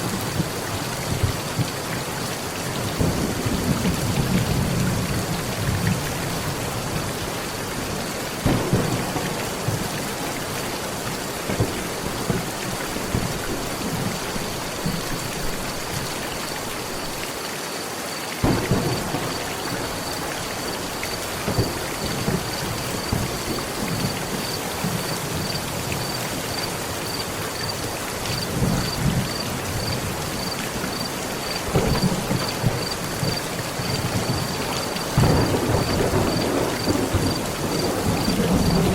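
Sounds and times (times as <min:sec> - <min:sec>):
heavy rain on a metal roof: 0:00.0 - 0:38.9
thunder rolling: 0:08.4 - 0:16.0, 0:18.4 - 0:26.1, 0:28.3 - 0:38.9.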